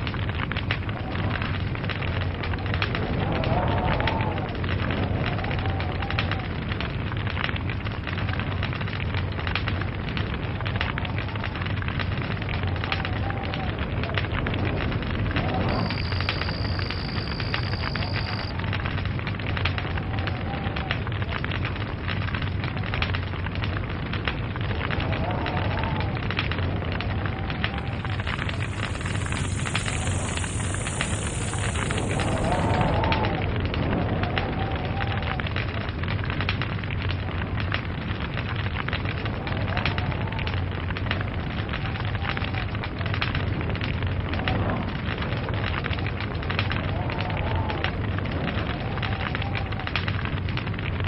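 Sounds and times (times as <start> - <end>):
log fire crackling: 0.0 - 51.0
low rumble of burning: 0.0 - 51.0
faint wavering whistle: 15.6 - 18.5
thin high whistle: 15.7 - 18.5, 28.2 - 32.7.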